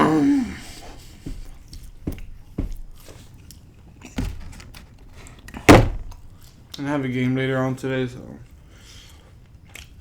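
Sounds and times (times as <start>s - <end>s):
chewing pizza: 0.6s - 4.3s, 8.4s - 10.0s.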